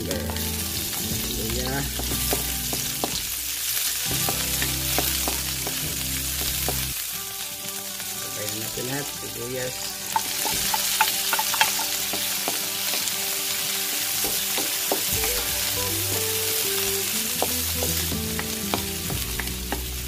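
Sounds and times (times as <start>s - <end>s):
vegetables sizzling in hot oil: 0.0s - 20.0s
wooden spatula clicking on pan: 10.2s - 12.6s.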